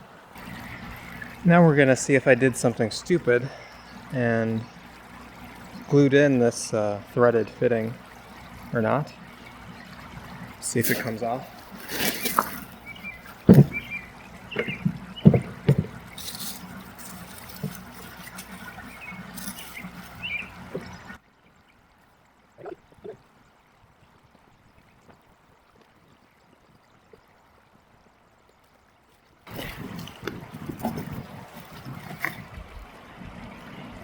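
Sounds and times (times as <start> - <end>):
trickling water: 0.0 - 34.0
plastic pipe knocks and clunks: 13.3 - 16.2.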